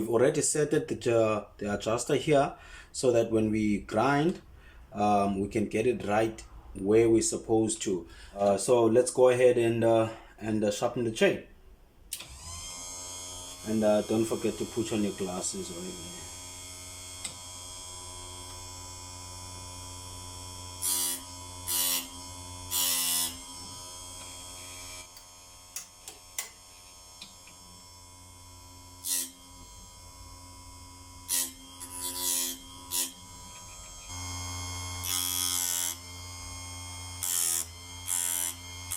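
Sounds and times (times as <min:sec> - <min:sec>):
chain sharpener motor whine: 0:12.2 - 0:38.9
grinding wheel on chain: 0:26.8 - 0:38.9.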